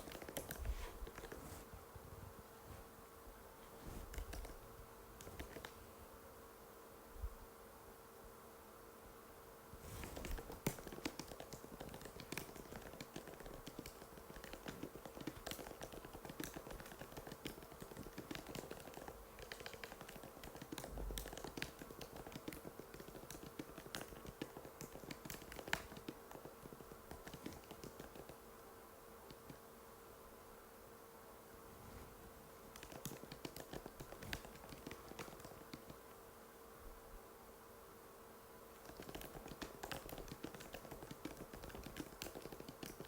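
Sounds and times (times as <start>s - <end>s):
fast typing on keyboard: 0.0s - 1.4s, 4.1s - 4.6s, 5.2s - 5.8s, 10.0s - 28.4s, 32.7s - 36.0s, 38.8s - 43.0s
faint steady hum: 0.0s - 43.0s.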